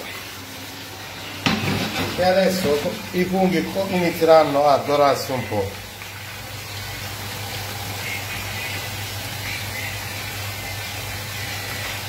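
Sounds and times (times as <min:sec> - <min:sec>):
mushrooms sizzling in a pan: 0:05.4 - 0:12.0.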